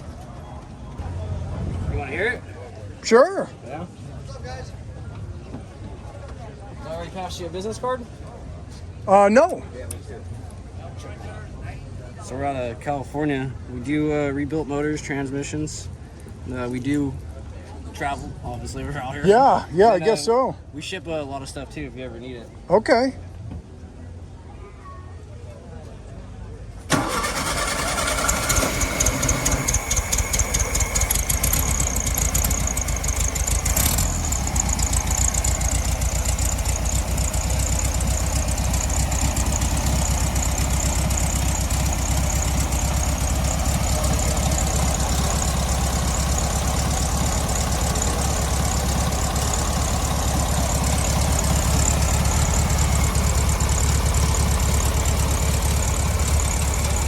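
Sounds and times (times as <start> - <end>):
car engine starting and idling: 26.9 - 57.0.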